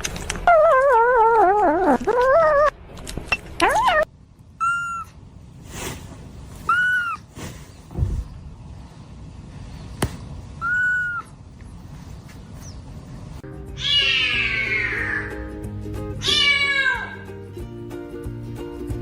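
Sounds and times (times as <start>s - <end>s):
light background music: 13.4s - 19.0s
cat meowing: 13.8s - 15.3s, 16.2s - 17.2s.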